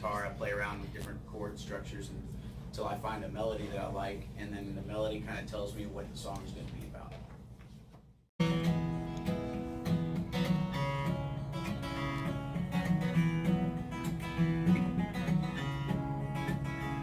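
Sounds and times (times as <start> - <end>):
acoustic guitar strumming: 8.4 - 17.0.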